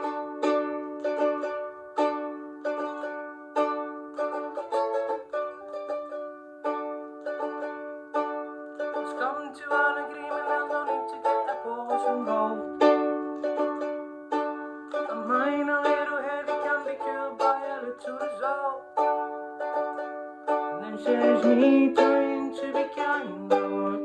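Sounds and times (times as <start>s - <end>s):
picked ukulele notes: 0.0s - 24.0s
ukulele strumming: 0.0s - 24.0s.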